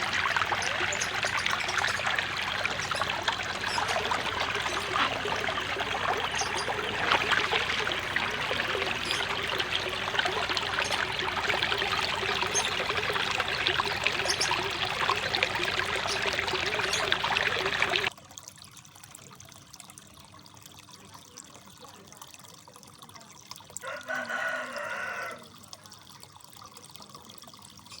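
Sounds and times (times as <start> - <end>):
water trickling into pond: 0.0 - 28.0
rooster crowing: 23.8 - 25.5.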